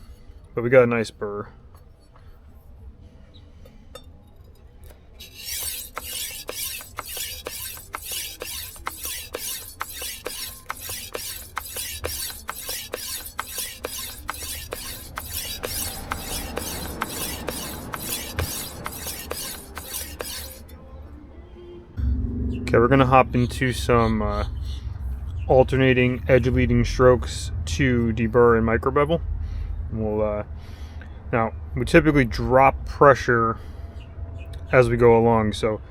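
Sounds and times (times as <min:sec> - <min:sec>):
knife scraping on whetstone: 0:05.2 - 0:20.7.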